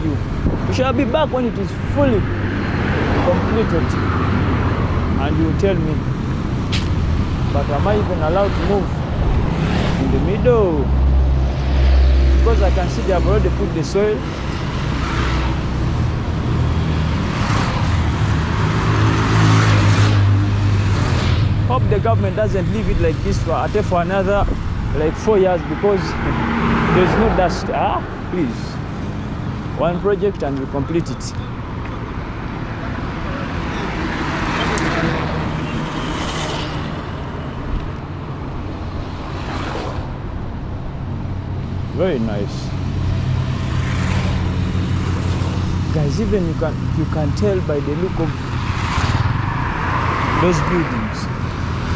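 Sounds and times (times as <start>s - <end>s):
low rumble of traffic: 0.0s - 51.9s
vehicle passing close by: 7.6s - 13.6s, 14.7s - 22.6s, 25.0s - 29.0s, 32.7s - 40.6s, 42.3s - 47.0s.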